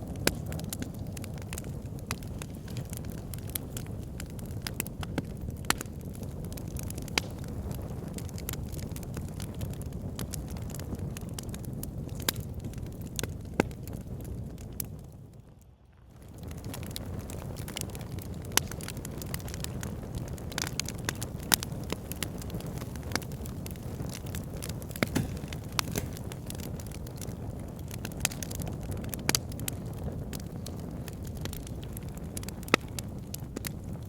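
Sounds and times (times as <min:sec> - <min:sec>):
fire pit crackling: 0:00.0 - 0:34.0.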